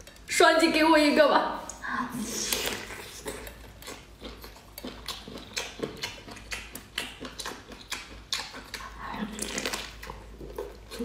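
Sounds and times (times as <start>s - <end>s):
wet chewing smacks and clicks: 0.0s - 0.3s, 2.5s - 11.0s.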